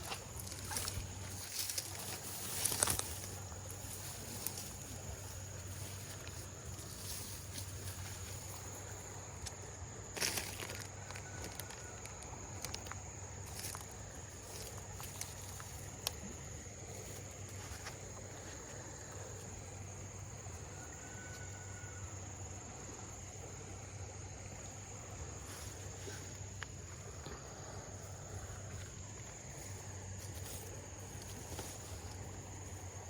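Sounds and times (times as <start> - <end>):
high-pitched insect drone: 0.0 - 9.5
handling clicks and rustles: 0.0 - 19.5, 28.0 - 33.0.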